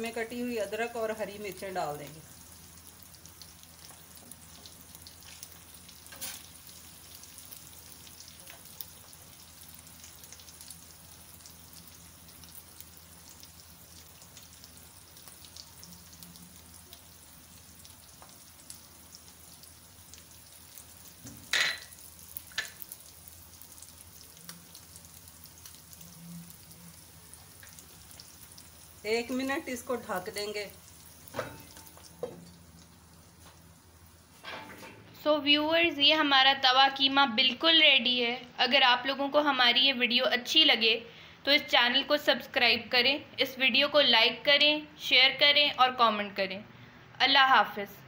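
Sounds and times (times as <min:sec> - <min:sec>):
meat sizzling on a griddle: 0:00.0 - 0:34.4.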